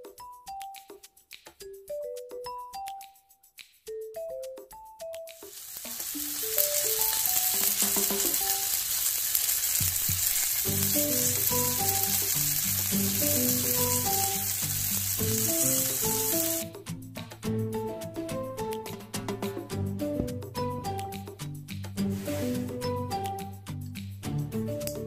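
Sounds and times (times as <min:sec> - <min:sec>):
dumplings sizzling in a pan: 0:05.4 - 0:16.7.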